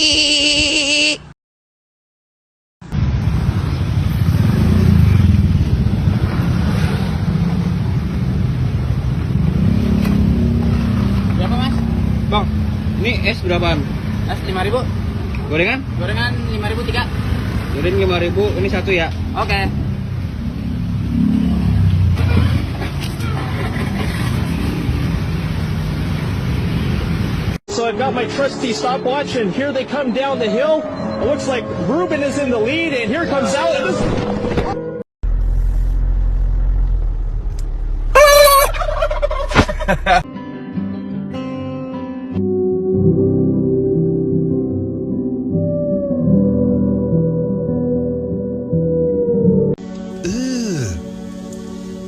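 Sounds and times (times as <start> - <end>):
motor vehicle rumbling: 2.8 - 27.6, 30.6 - 40.3
street noise: 2.8 - 40.3, 48.9 - 52.0
loud low rumbling noise: 35.2 - 38.2.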